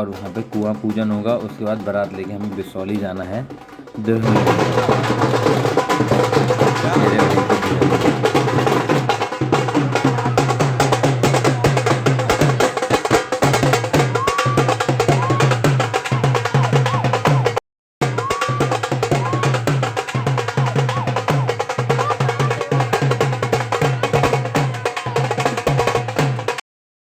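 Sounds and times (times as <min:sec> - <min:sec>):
fast dense drumming: 0:00.0 - 0:26.6
repeating bass beat: 0:13.6 - 0:25.6.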